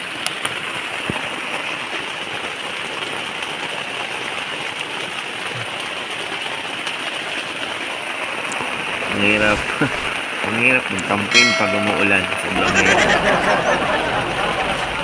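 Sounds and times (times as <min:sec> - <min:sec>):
heavy rain on a tent: 0:00.0 - 0:09.0.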